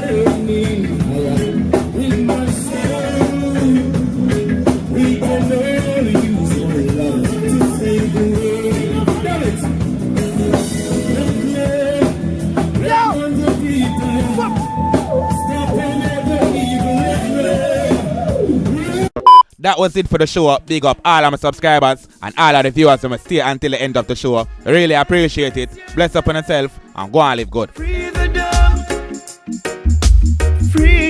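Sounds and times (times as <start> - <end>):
reggae song with singer and band: 0.0 - 19.4, 27.7 - 31.0.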